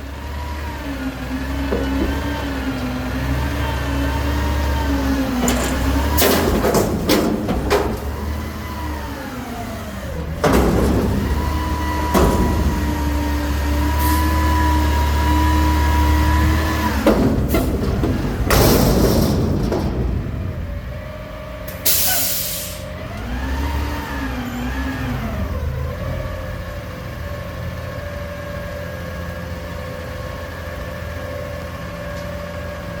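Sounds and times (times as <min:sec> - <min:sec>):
diesel engine revving: 0:00.0 - 0:33.0
loud metal bangs and clanks: 0:01.8 - 0:22.6.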